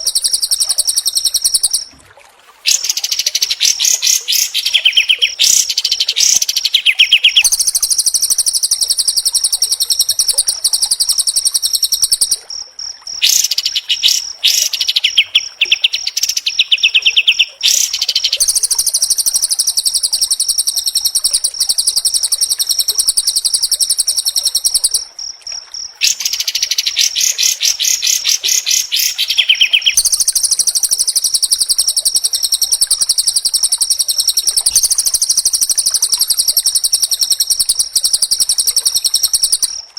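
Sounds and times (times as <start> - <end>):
caged songbird singing harsh runs: 0.0 - 1.9, 2.6 - 12.4, 13.2 - 25.0, 26.0 - 39.8.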